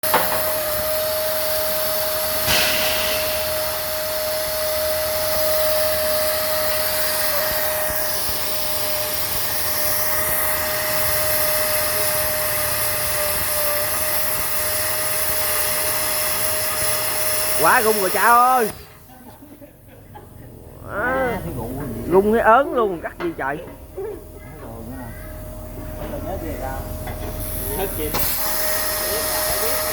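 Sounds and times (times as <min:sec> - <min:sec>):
plasma cutter hissing: 0:00.1 - 0:19.0, 0:26.6 - 0:29.9.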